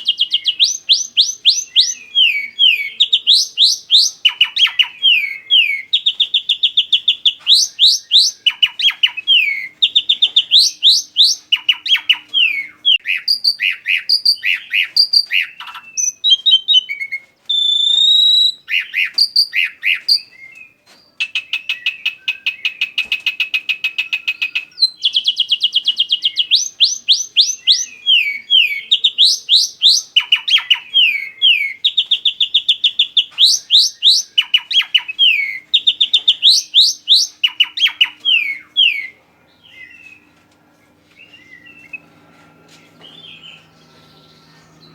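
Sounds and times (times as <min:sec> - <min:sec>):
bird song chirping and whistling: 0:00.0 - 0:40.3, 0:41.2 - 0:42.1, 0:42.8 - 0:44.9
faint low hum: 0:26.2 - 0:44.9.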